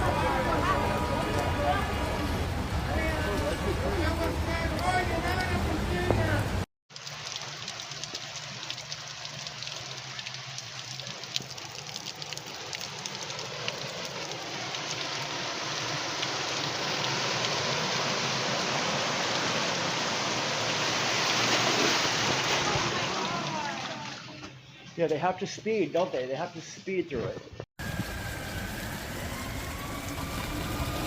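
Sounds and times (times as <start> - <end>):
heavy rain pattering on street: 0.0 - 19.6, 27.8 - 31.0
rushing floodwater: 0.0 - 24.4.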